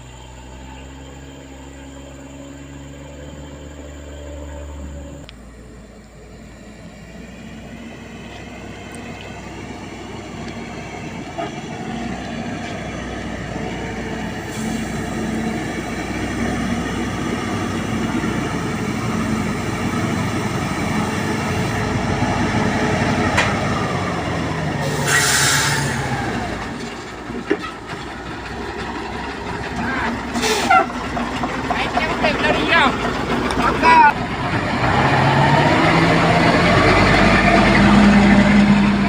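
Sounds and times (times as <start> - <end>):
lorry diesel engine running: 0.0 - 39.0
air brake hiss: 14.4 - 15.1, 24.9 - 26.0, 30.4 - 30.7.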